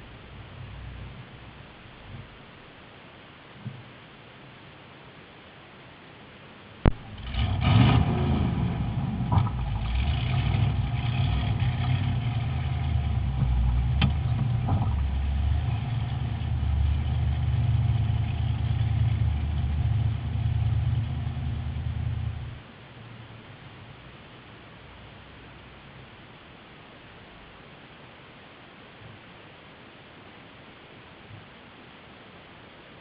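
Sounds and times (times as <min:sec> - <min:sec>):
truck engine starting and revving: 0:06.9 - 0:22.6.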